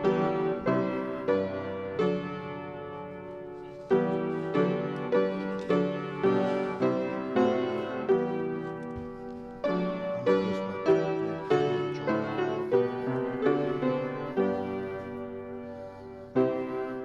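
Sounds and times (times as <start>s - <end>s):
piano chords and melody: 0.0s - 17.0s.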